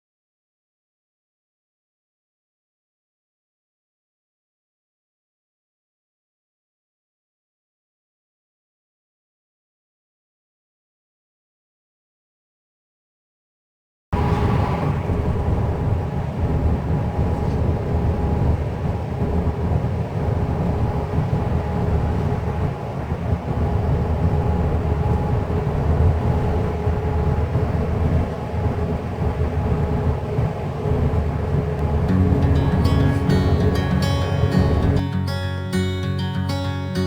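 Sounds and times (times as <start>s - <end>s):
vehicle rumbling while moving: 14.2s - 35.3s.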